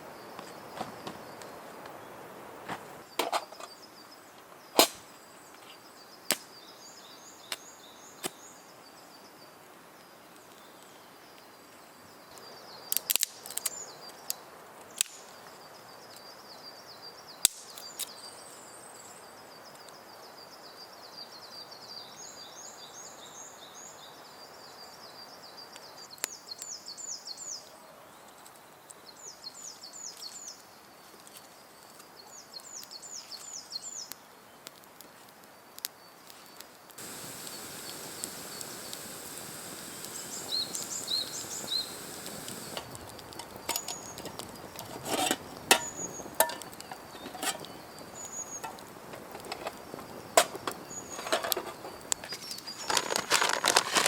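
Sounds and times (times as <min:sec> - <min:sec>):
faint steady hiss: 0:00.0 - 0:54.0
sharp cracks and pops: 0:04.8 - 0:05.2, 0:06.3 - 0:06.6, 0:12.4 - 0:15.4, 0:17.4 - 0:18.2, 0:31.2 - 0:54.0
songbirds trilling: 0:37.0 - 0:53.0.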